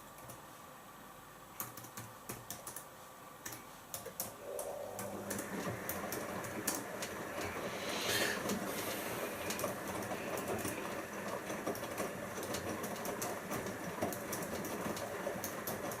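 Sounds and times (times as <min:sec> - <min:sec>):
washing machine drum churning: 0:04.4 - 0:16.0.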